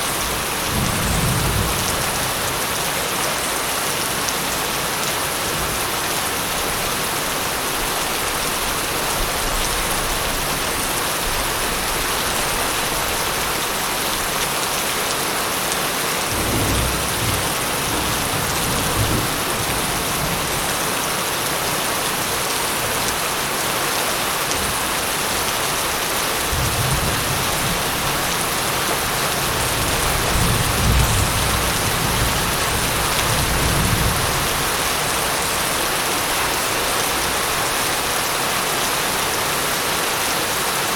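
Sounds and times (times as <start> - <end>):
rain falling: 0.0 - 40.9
low rolling thunder: 0.3 - 2.6.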